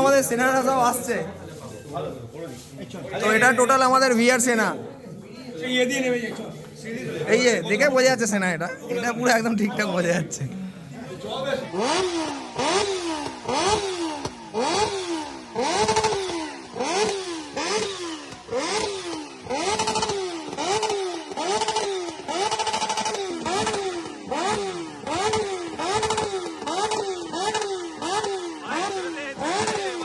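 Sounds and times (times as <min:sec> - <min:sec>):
motorcycle engine revving: 0:11.6 - 0:30.0.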